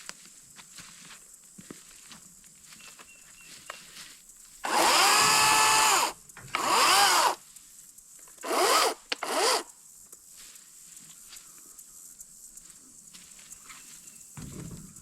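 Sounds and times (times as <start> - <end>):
small electric power tool motor: 4.6 - 7.4, 8.4 - 9.7.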